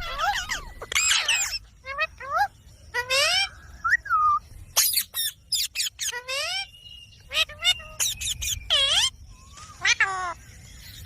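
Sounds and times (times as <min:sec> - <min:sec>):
parrot squawking: 0:00.0 - 0:03.5, 0:04.8 - 0:09.1.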